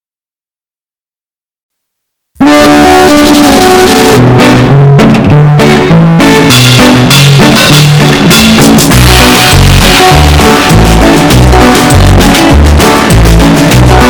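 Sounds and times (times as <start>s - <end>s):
plucked guitar: 2.4s - 14.0s
drums: 3.3s - 14.0s
heavy bass beat: 5.4s - 14.0s.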